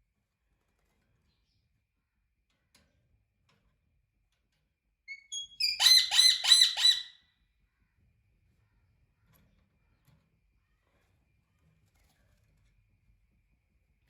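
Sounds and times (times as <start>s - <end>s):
parrot chirping: 5.1s - 7.1s
parrot squawking harshly: 5.1s - 7.1s.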